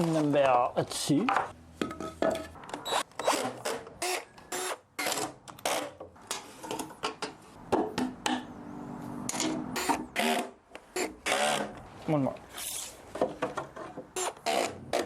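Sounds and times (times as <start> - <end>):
wooden boards knocking and clattering: 13.1 - 14.1.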